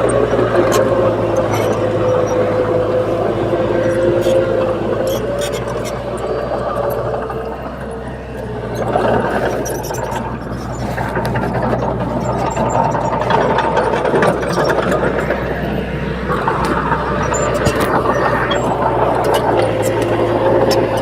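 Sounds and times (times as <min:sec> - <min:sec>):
bulldozer diesel engine running: 0:00.0 - 0:21.0
rattles and clanks: 0:00.0 - 0:21.0.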